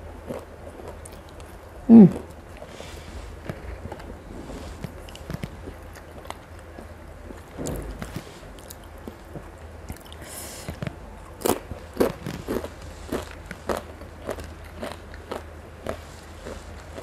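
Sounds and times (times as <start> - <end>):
person chewing noodles: 0.2 - 7.6, 8.6 - 17.0.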